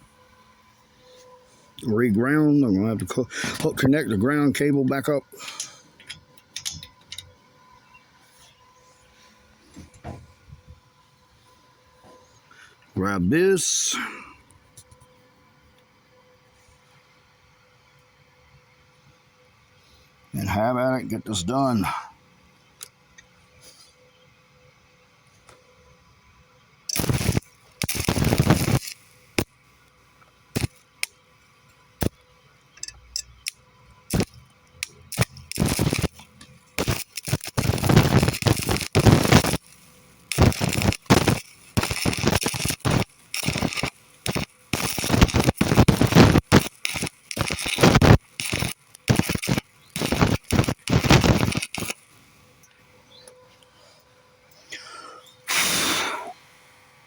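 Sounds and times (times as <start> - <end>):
electric arc welding: 26.9 - 29.6, 30.5 - 31.2, 33.1 - 52.3.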